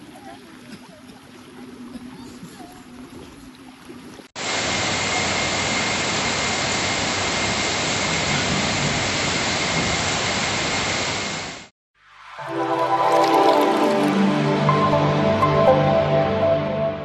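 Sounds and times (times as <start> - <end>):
heavy rain hissing: 4.4 - 11.7.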